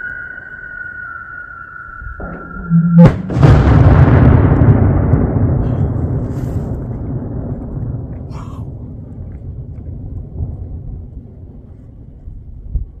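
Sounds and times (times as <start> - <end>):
firework bang rumbling: 2.1 - 11.2.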